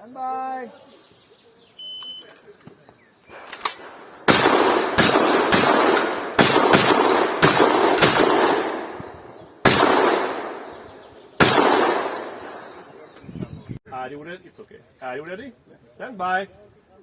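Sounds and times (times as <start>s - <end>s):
shotgun shots echoing: 3.3s - 13.1s.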